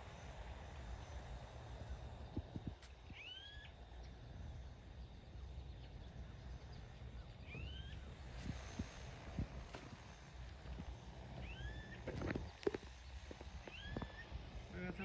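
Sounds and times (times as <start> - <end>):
low steady rumble: 0.0 - 15.0
bird calling: 7.4 - 8.1, 11.4 - 15.0.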